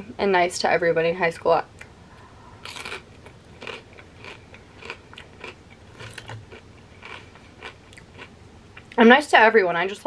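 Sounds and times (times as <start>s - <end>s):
person chewing crunchy chip: 2.6s - 9.0s.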